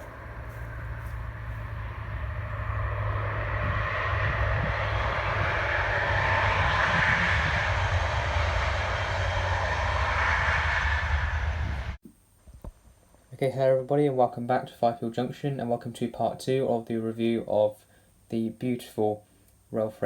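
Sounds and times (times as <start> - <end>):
diesel locomotive engine running: 0.0 - 12.0.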